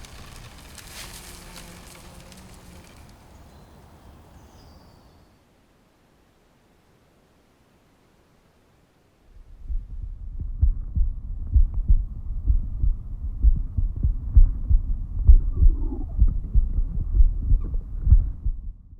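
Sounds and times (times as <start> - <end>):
dull hum: 9.3 - 18.9
muffled low thumping pulses: 9.3 - 18.9.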